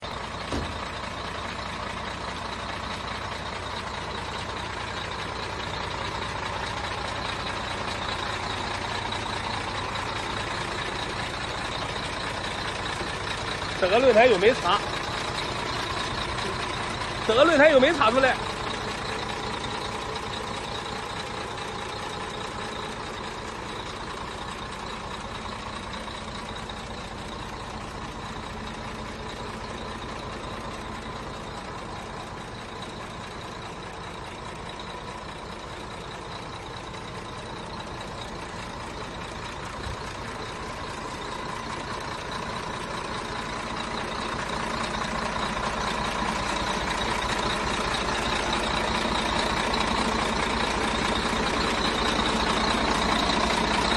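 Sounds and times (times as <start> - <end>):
truck diesel engine idling: 0.0 - 53.9.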